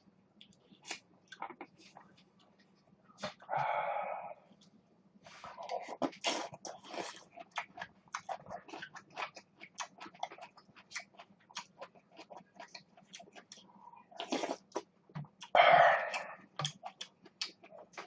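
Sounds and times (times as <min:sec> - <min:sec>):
chewing and crunching: 0:05.3 - 0:18.0
mouth clicks: 0:15.4 - 0:16.8.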